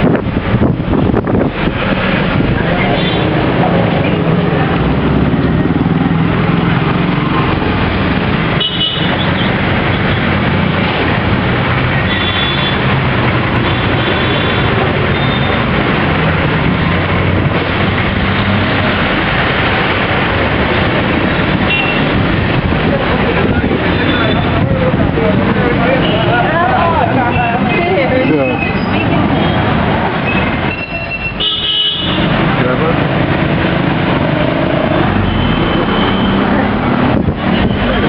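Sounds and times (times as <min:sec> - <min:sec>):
road traffic noise: 0:00.0 - 0:38.0
car horns tooting: 0:08.5 - 0:09.5, 0:12.0 - 0:15.6, 0:21.6 - 0:22.2, 0:30.3 - 0:32.4.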